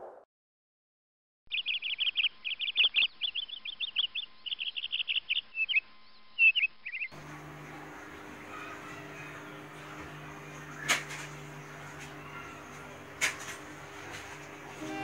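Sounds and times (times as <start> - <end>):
small bird chirping: 1.5 - 7.2.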